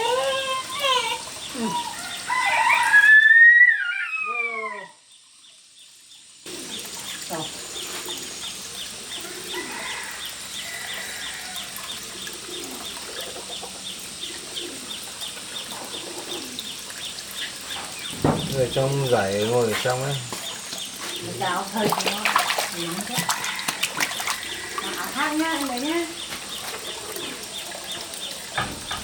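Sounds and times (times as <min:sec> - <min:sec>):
rooster crowing: 0:01.5 - 0:05.0, 0:09.2 - 0:12.1, 0:23.0 - 0:25.6.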